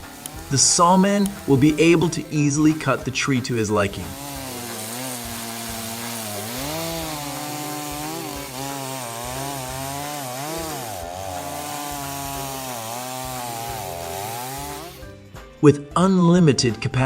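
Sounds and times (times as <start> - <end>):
chainsaw cutting wood: 0.0 - 15.1.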